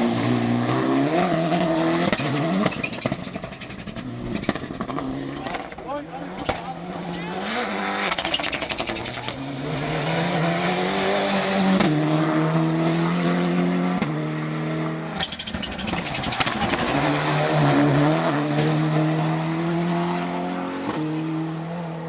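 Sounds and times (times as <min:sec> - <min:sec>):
engine crackles and pops: 0:00.0 - 0:12.0, 0:15.0 - 0:18.3
race car engine accelerating: 0:00.0 - 0:22.0.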